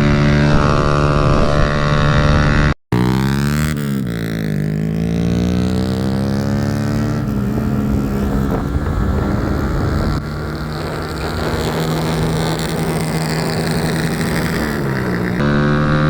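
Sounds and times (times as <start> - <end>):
motorcycle engine accelerating: 0.0 - 16.0
wind on microphone: 5.3 - 15.5.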